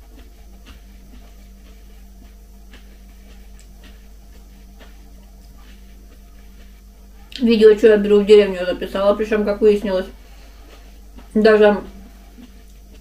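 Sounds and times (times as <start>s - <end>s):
chewing and wet mouth clicks: 0.0s - 7.5s, 10.6s - 11.4s, 12.2s - 13.0s
steady low hum: 0.0s - 13.0s.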